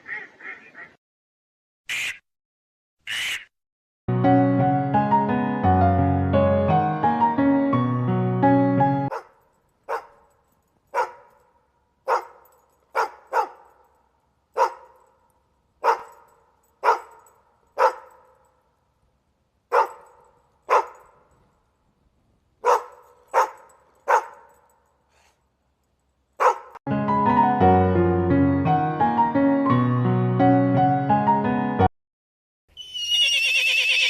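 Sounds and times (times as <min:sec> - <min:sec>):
dog barking: 0:09.1 - 0:10.3, 0:10.9 - 0:13.9, 0:14.6 - 0:15.1, 0:15.8 - 0:18.5, 0:19.7 - 0:21.2, 0:22.6 - 0:24.6, 0:26.4 - 0:26.8.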